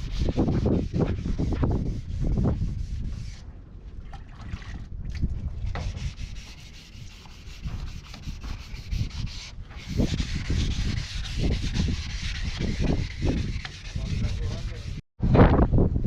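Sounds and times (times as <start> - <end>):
sanding scraping: 0.0 - 3.4, 5.8 - 15.0.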